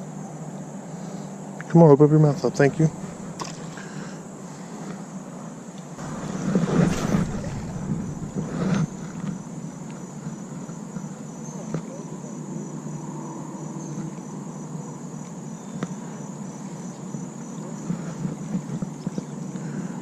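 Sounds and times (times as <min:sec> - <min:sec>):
insects chirring: 0:02.2 - 0:20.0
constant rushing noise: 0:06.0 - 0:09.9.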